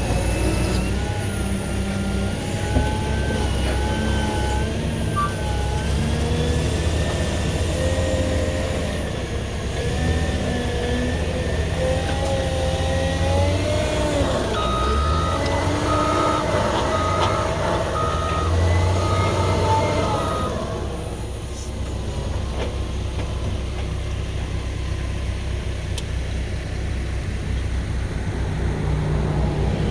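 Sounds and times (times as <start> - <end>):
diesel engine under load: 0.0 - 29.9
reversing alarm beeping: 14.0 - 20.9.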